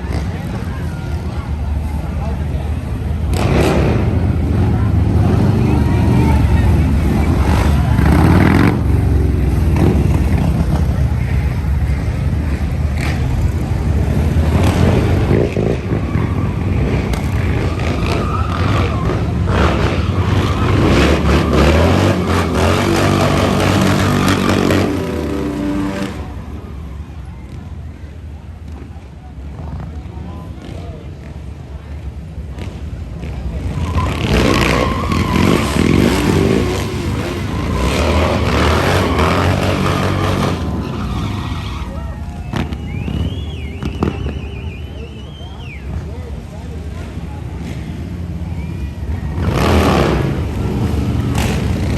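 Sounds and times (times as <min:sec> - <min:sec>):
dirt bike engine revving: 0:03.3 - 0:11.4, 0:16.6 - 0:26.6, 0:34.0 - 0:44.4, 0:49.3 - 0:51.9.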